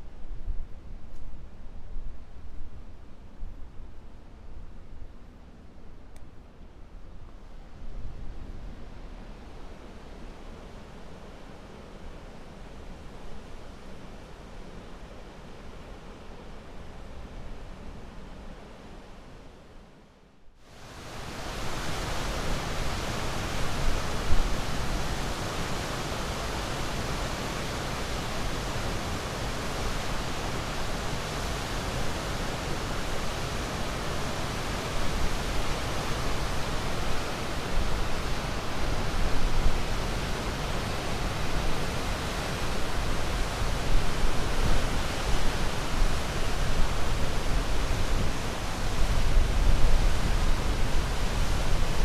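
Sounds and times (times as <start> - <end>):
rushing water: 20.8 - 52.0.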